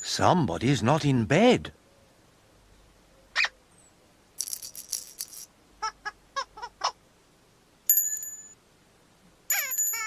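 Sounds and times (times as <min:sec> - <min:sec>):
bright high ringing chime: 0:07.9 - 0:08.6, 0:09.5 - 0:10.0.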